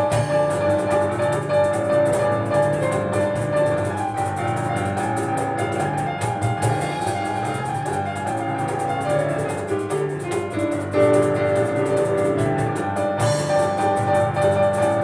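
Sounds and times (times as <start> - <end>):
fast piano playing: 0.0 - 15.0
rapid cajon beat: 0.0 - 15.0.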